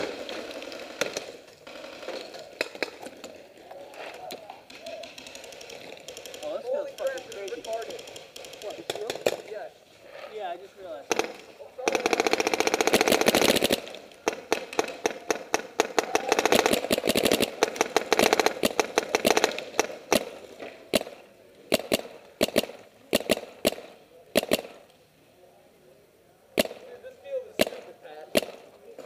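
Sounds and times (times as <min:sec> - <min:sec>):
paintball markers firing: 0:04.2 - 0:09.5, 0:11.1 - 0:24.9, 0:26.6 - 0:26.9, 0:27.6 - 0:28.8.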